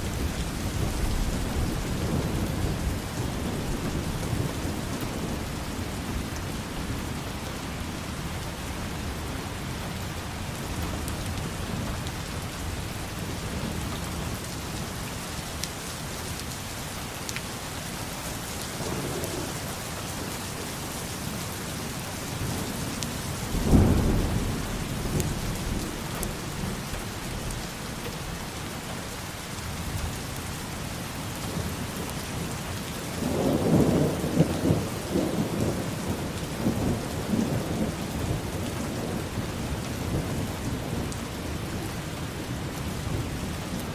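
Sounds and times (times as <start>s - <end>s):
steady rainfall: 0.0s - 43.9s
thunder clap and rumble: 17.4s - 28.4s, 33.1s - 41.7s.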